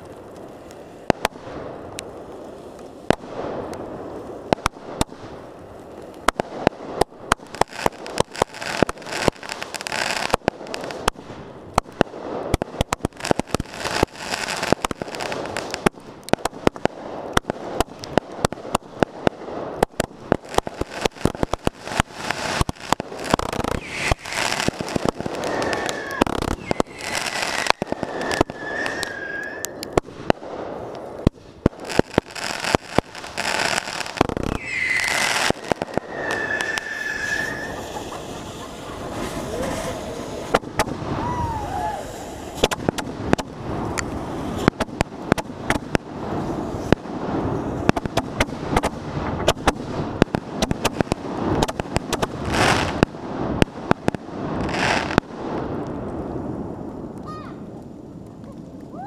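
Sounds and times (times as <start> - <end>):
fireworks bangs: 0.0 - 59.0
fireworks crackle: 0.0 - 59.0
firework wavering whistle: 22.4 - 30.0, 33.2 - 43.4.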